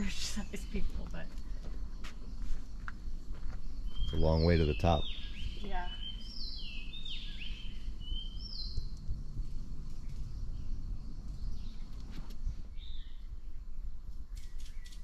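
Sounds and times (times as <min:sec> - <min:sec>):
bird calling: 0:00.0 - 0:09.0
low outdoor rumble: 0:00.0 - 0:15.0.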